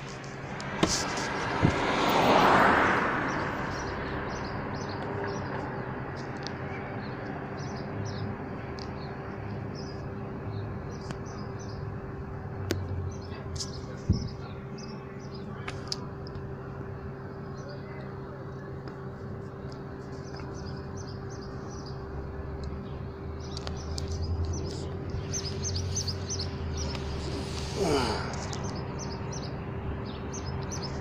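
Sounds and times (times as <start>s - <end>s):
small birds chirping: 3.2s - 12.0s, 12.7s - 16.6s, 17.2s - 31.0s
steady low hum: 6.2s - 31.0s.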